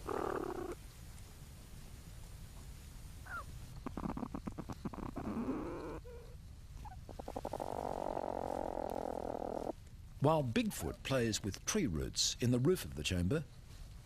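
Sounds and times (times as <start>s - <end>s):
scratching and scuffling on earth: 6.0s - 14.0s.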